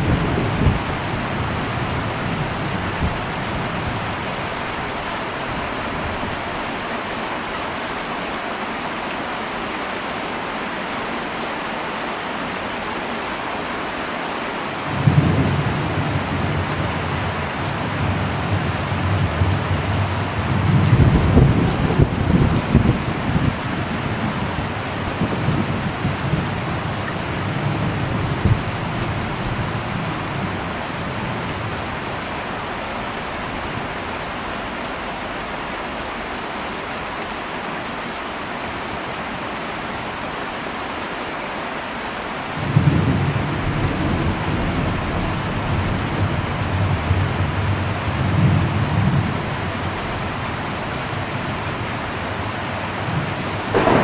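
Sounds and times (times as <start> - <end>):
rolling thunder: 0.0 - 6.5, 14.9 - 31.8, 53.1 - 54.0
heavy rain on metal roof: 0.0 - 54.0.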